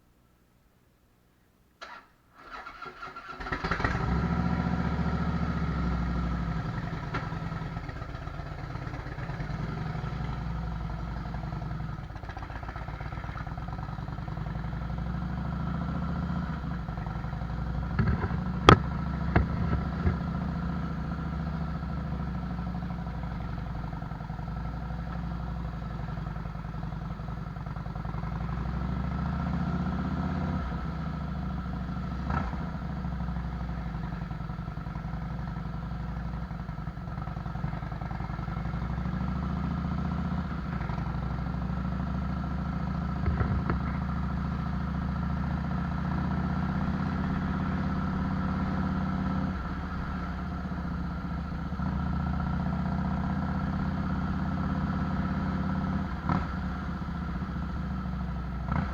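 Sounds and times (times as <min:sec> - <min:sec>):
motorcycle engine rumbling: 0:01.9 - 0:58.9.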